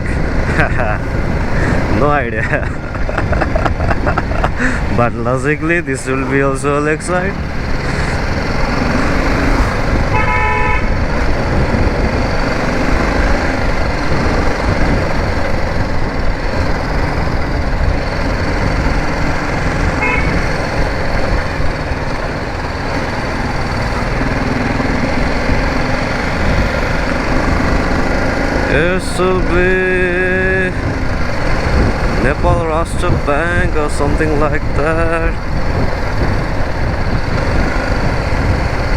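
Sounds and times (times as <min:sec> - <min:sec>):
motorcycle engine: 0:00.0 - 0:38.9
wind rush: 0:00.0 - 0:38.9
vehicle horn toot: 0:10.1 - 0:11.0, 0:19.9 - 0:20.5.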